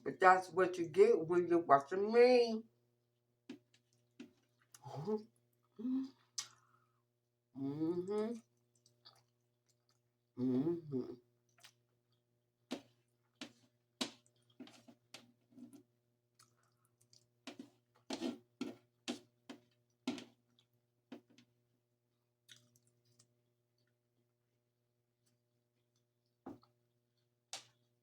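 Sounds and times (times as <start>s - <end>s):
person chewing: 6.2s - 6.8s, 8.1s - 10.1s, 11.5s - 15.0s, 15.6s - 20.8s, 22.4s - 24.0s.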